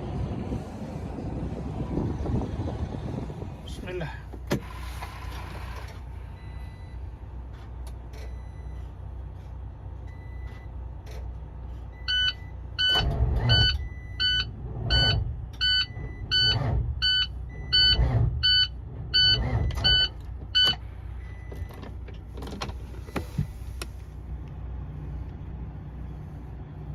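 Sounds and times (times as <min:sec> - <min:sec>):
truck engine running: 0:00.0 - 0:26.9
electronic warning beep: 0:12.0 - 0:21.8.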